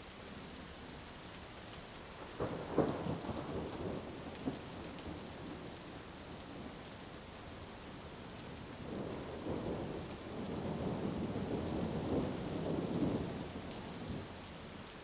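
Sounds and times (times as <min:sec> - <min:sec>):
heavy rain falling: 0:00.0 - 0:15.0
thunder rumbling: 0:02.4 - 0:05.7, 0:08.8 - 0:14.3.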